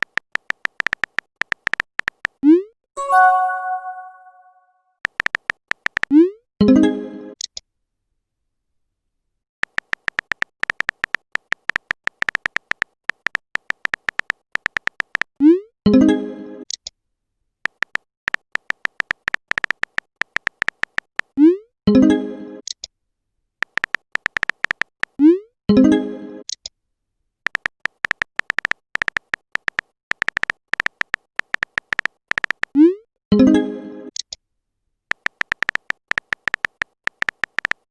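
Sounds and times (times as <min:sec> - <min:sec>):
keyboard key-tap clicks: 0:00.0 - 0:02.4, 0:05.1 - 0:06.1, 0:09.6 - 0:15.3, 0:17.7 - 0:21.3, 0:23.6 - 0:25.2, 0:27.5 - 0:32.7, 0:35.1 - 0:37.8
message chime: 0:03.0 - 0:04.6
short high electronic beeps: 0:03.0 - 0:04.6
short high pings: 0:03.0 - 0:04.6.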